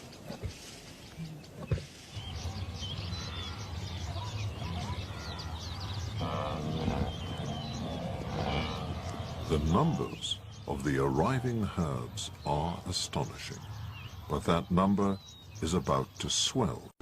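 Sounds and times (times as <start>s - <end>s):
birds chirping: 0.0s - 17.0s
low-pitched animal call: 2.2s - 10.2s.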